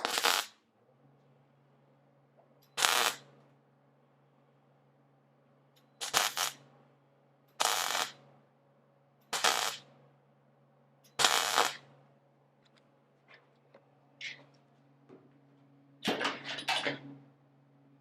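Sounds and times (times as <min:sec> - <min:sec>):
welder crackling: 0:00.0 - 0:00.6, 0:02.8 - 0:03.3, 0:06.0 - 0:06.6, 0:07.6 - 0:08.2, 0:09.3 - 0:09.9, 0:11.1 - 0:11.9
steady low hum: 0:00.0 - 0:18.0.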